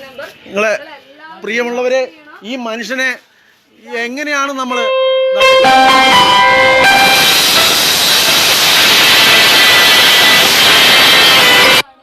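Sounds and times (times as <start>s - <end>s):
loud steady hiss: 5.5s - 11.9s.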